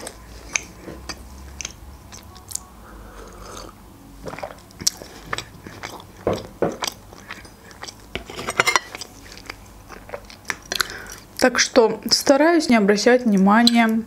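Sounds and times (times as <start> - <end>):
wet chewing: 0.0 - 2.7, 3.3 - 11.4.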